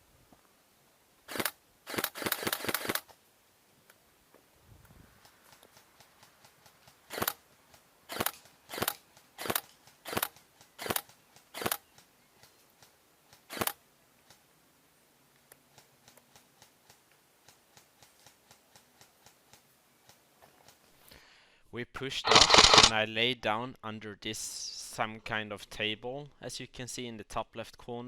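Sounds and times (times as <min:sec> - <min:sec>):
faint clicks: 0:15.3 - 0:20.9.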